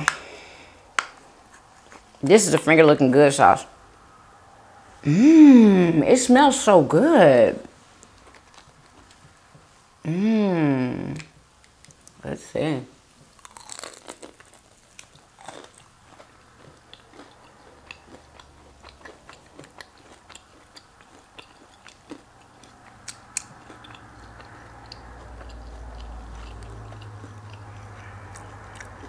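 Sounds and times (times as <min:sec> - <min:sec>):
low steady hum: 0:00.0 - 0:29.0
person chewing crunchy food: 0:08.0 - 0:09.4, 0:13.3 - 0:29.0.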